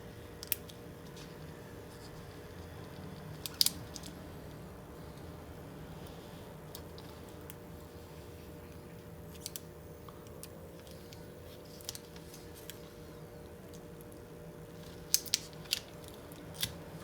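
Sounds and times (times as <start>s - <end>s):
steady low hum: 0.0s - 17.0s
film peeling clicks and crackles: 0.4s - 5.3s, 8.7s - 17.0s.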